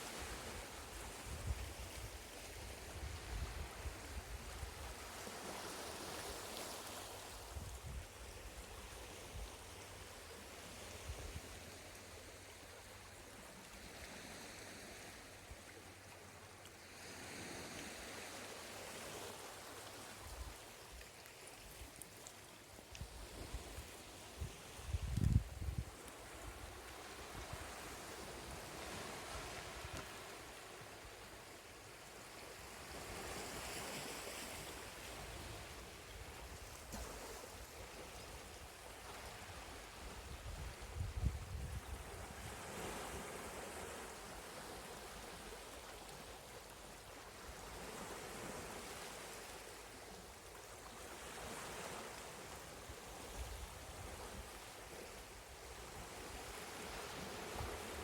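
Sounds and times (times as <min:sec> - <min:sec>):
sea water washing on shore: 0:00.0 - 0:41.0.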